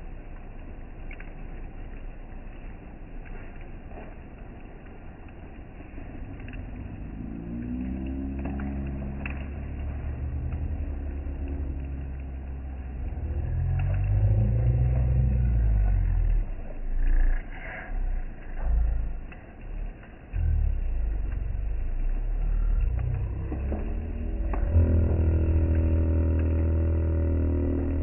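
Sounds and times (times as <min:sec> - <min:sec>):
campfire crackles: 0:00.0 - 0:28.0
vehicle engine passing: 0:06.3 - 0:17.9, 0:20.6 - 0:28.0.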